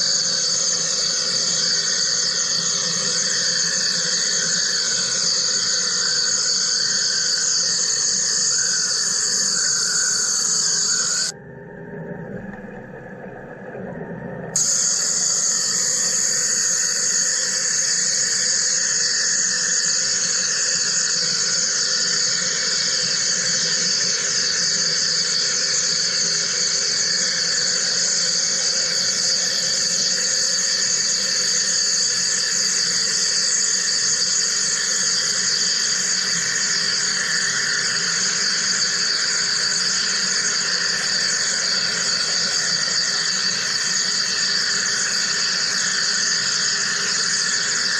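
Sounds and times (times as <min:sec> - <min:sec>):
machine cutting with steady hiss: 0:09.1 - 0:11.3, 0:14.6 - 0:19.2.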